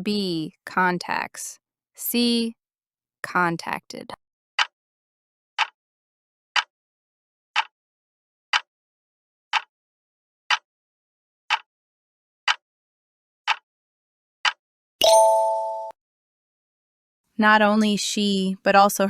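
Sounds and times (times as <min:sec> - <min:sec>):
countdown timer ticks: 0:14.5 - 0:16.0.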